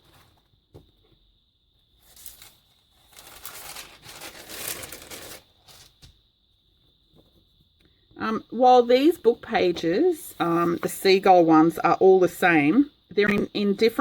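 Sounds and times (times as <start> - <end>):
paper rustling and crinkling: 2.0 - 6.2.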